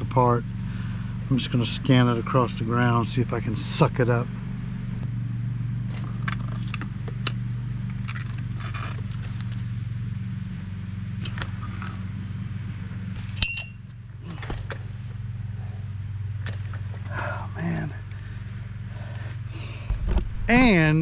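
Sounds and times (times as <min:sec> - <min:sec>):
steady low hum: 0:00.0 - 0:21.0
metal parts clinking and rattling: 0:13.2 - 0:13.8.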